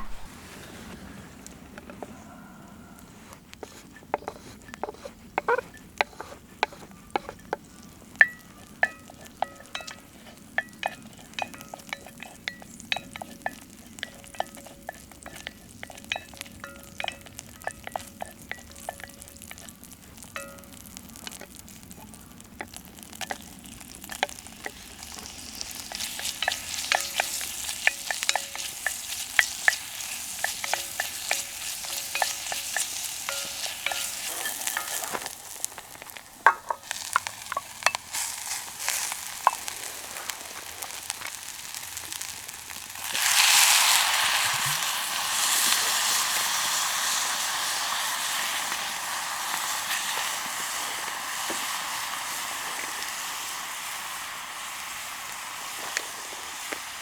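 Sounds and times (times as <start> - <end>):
food sizzling in a pan: 0.0 - 57.0
utensil knocking against pan: 4.1 - 7.6, 36.4 - 38.0.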